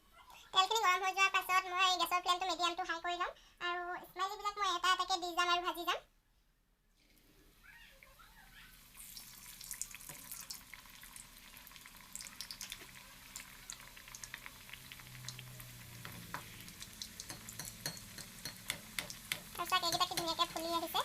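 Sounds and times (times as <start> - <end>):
snacks sizzling in hot oil: 7.2 - 21.0
oil crackling and popping: 8.7 - 21.0.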